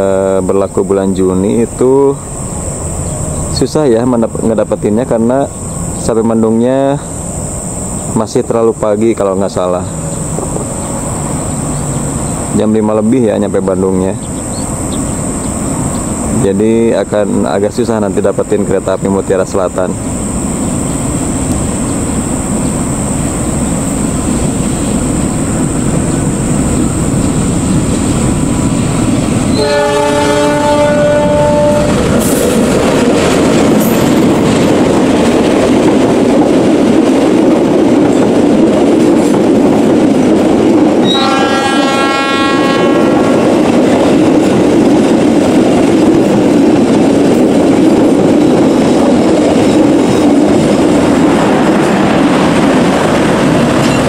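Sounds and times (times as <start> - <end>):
locomotive engine running: 18.6 - 41.2
train horn blasts: 29.5 - 32.2, 41.0 - 43.4.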